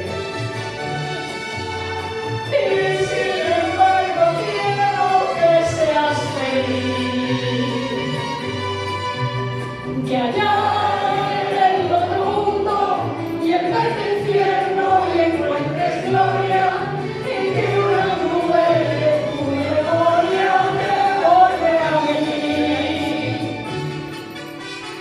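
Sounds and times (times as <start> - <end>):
low instrumental accompaniment: 0.0 - 25.0
choir singing: 2.5 - 8.0, 10.1 - 23.7.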